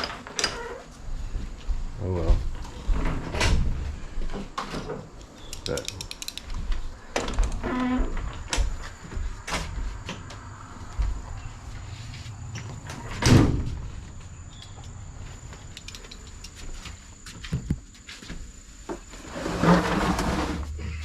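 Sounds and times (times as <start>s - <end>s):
handling knocks and clicks: 5.1s - 7.6s, 15.6s - 16.9s
loud thump: 13.2s - 13.8s.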